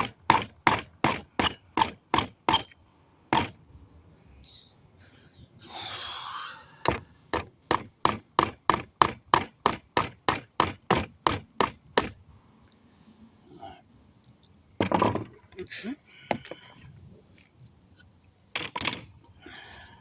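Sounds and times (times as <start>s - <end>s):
hammer striking a nail: 0.0s - 3.6s, 6.8s - 12.2s.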